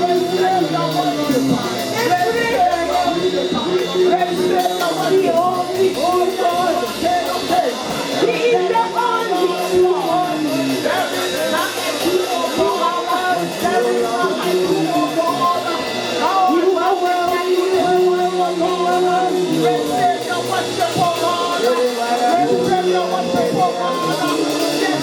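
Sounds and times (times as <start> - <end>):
band playing gospel music: 0.0 - 25.0
people singing: 0.0 - 25.0.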